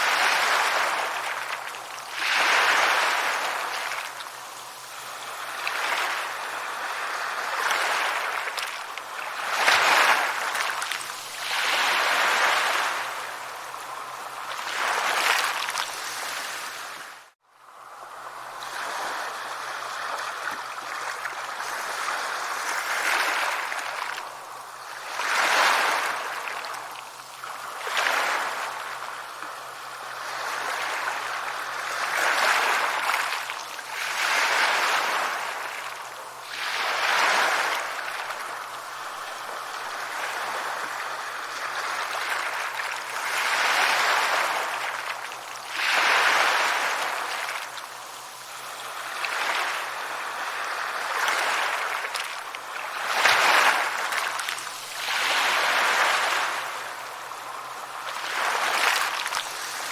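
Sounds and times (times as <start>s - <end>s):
sea waves breaking on shore: 0.0s - 59.9s.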